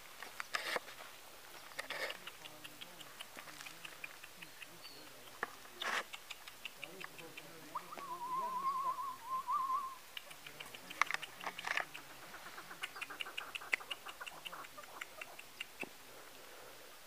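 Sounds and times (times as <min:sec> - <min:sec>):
wavering trilled whistle: 0:07.8 - 0:10.0.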